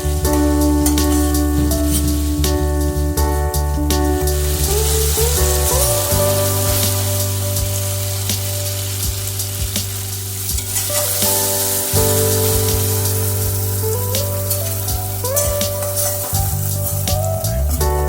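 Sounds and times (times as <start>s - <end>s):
background music of held tones: 0.0s - 18.0s
food sizzling in a pan: 0.1s - 2.5s, 4.3s - 17.0s.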